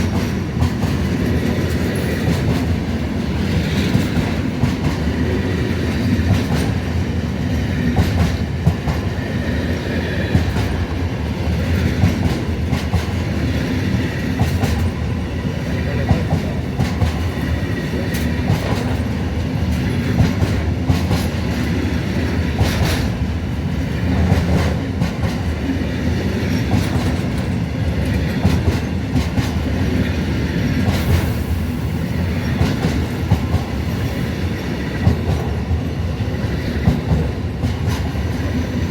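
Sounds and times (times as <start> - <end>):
train rumbling: 0.0 - 38.9.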